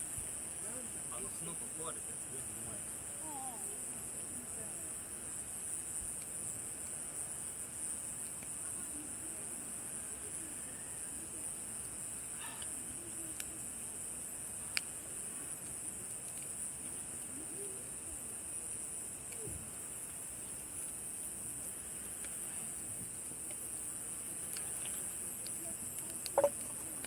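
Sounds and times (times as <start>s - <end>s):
night insects chirring: 0.0s - 27.0s
campfire pops: 14.6s - 17.3s, 22.1s - 27.0s.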